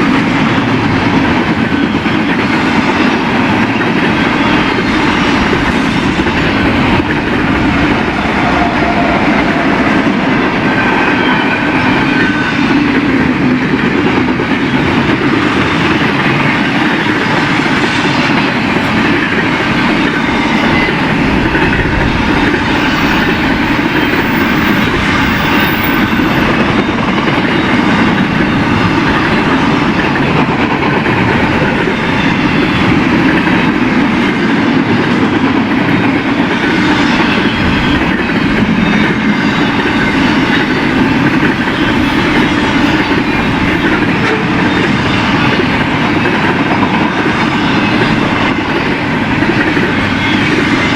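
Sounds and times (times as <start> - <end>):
freight train cars rolling past: 0.0 - 50.9.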